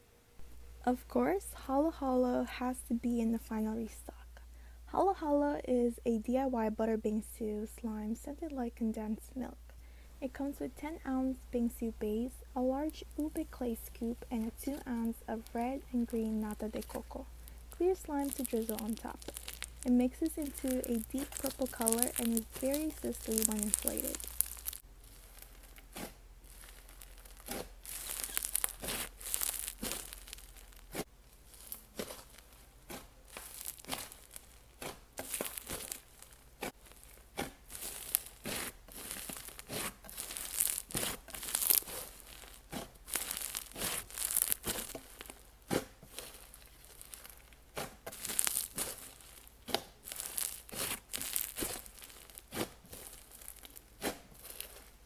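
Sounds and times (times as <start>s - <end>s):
slime squished by hand: 12.9s - 55.0s.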